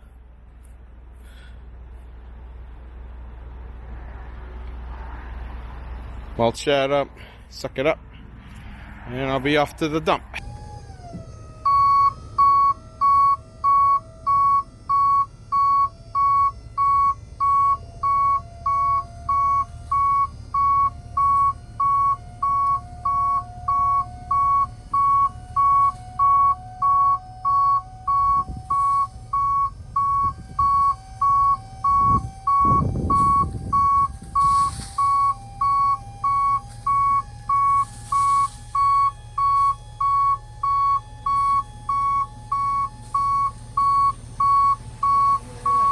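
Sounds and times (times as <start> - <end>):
low rumbling rush: 0.0 - 13.6, 28.2 - 35.0
low engine rumble: 0.0 - 45.9
vehicle backup alarm beeping: 9.8 - 45.9.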